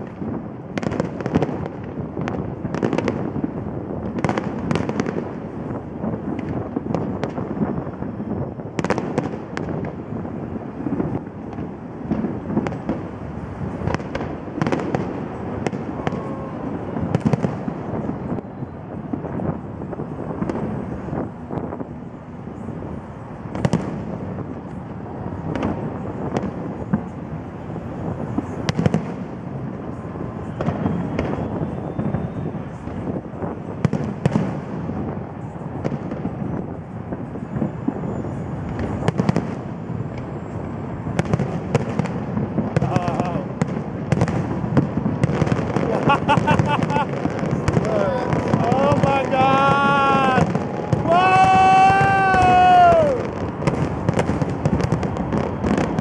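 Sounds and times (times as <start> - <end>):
steady fireworks rumble: 0.0 - 56.0
fireworks shells bursting: 41.2 - 56.0.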